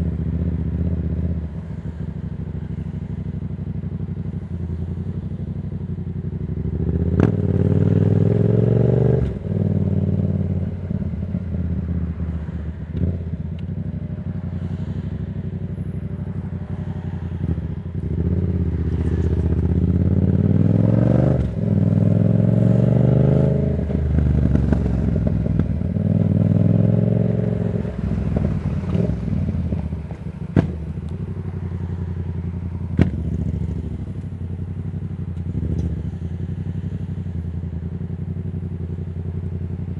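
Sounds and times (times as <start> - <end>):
motorcycle engine revving: 0.0 - 39.9
exhaust cracks: 27.9 - 34.6.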